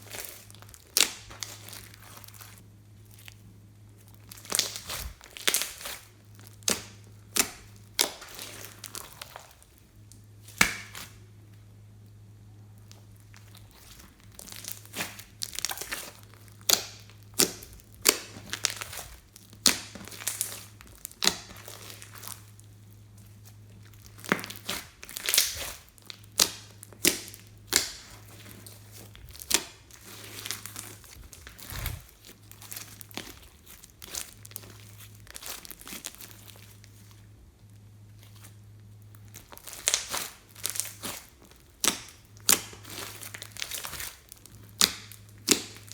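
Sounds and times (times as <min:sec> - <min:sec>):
slime sticky pops and crackles: 0:04.3 - 0:09.5, 0:12.9 - 0:22.5, 0:23.9 - 0:36.4, 0:39.2 - 0:45.9.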